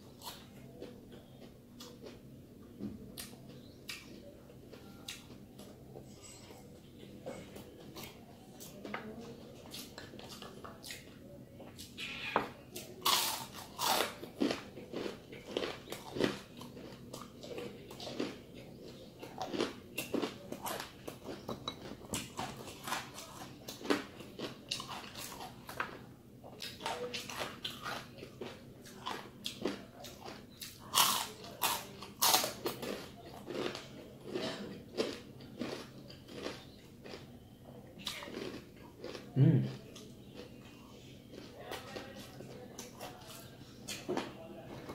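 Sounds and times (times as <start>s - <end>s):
crunching fried chicken skin: 11.8s - 37.2s, 38.0s - 40.5s.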